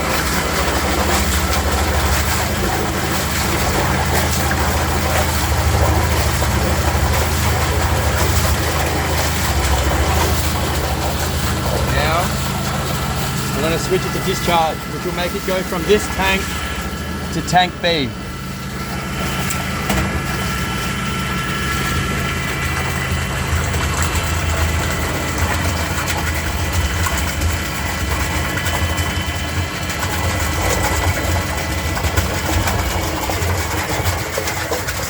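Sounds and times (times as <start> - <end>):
electric motors humming and whining: 0.0 - 25.7
water being pumped: 0.0 - 35.0.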